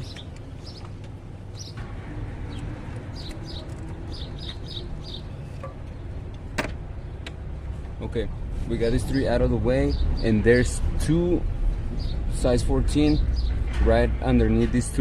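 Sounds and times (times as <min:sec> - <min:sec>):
bird chirping: 0:00.0 - 0:01.8, 0:02.4 - 0:07.4, 0:11.7 - 0:13.7.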